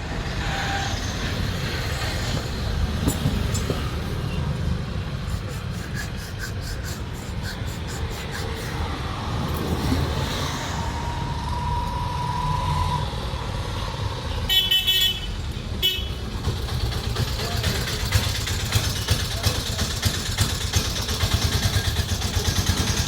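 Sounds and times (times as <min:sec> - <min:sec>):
low rumble of traffic: 0:00.0 - 0:23.0
vehicle horn tooting: 0:14.5 - 0:16.4.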